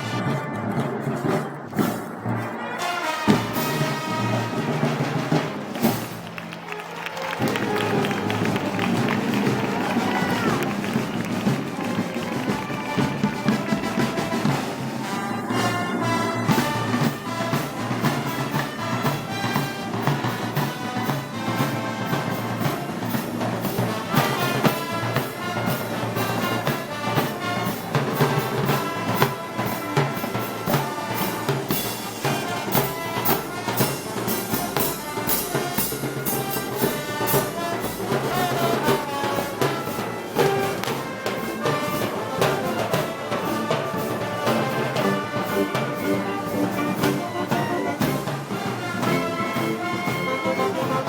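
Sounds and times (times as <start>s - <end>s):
brass band playing: 0.0s - 51.0s
drums playing steady beat: 0.0s - 51.0s.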